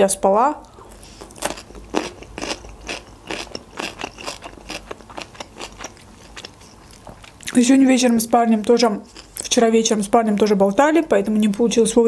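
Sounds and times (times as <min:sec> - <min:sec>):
chewing clicks and smacks: 0:01.4 - 0:07.6.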